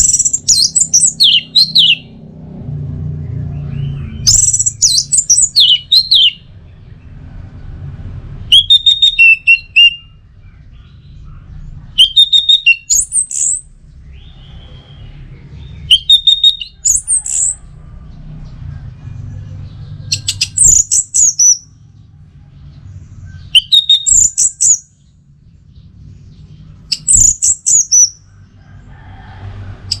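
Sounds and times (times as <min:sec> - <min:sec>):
thrush singing whistled notes: 0:00.0 - 0:02.2, 0:03.2 - 0:06.6, 0:08.4 - 0:11.1, 0:12.0 - 0:17.8, 0:20.0 - 0:21.8, 0:23.3 - 0:25.1, 0:26.4 - 0:28.3.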